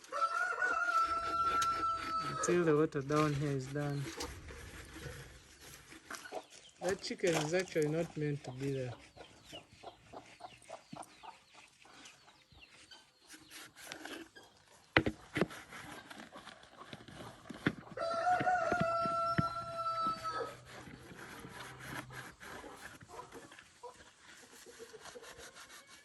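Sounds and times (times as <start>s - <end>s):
rooster crowing: 0.1s - 2.6s, 18.0s - 20.6s.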